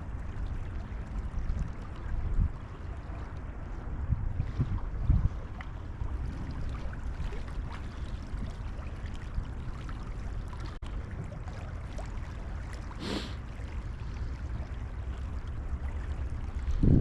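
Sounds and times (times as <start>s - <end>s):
wind buffeting microphone: 0.0s - 11.7s, 14.4s - 17.0s
short hiss: 13.0s - 13.4s.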